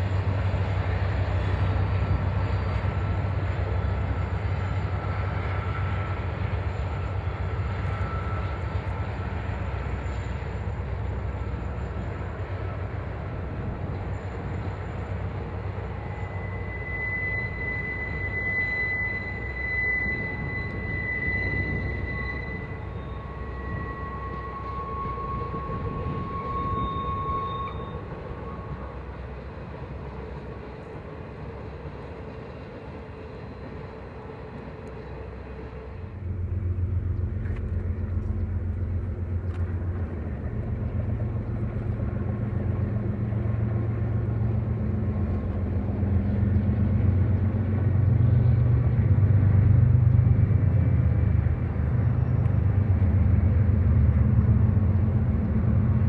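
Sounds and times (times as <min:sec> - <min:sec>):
train rumble: 0:00.0 - 0:56.0
high-pitched ringing tones: 0:15.7 - 0:29.8.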